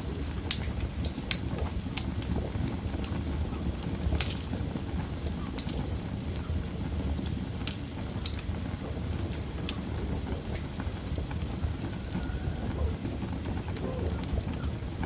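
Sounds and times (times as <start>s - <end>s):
wood crackling and popping: 0.0s - 15.0s
fire flames rushing: 3.8s - 15.0s.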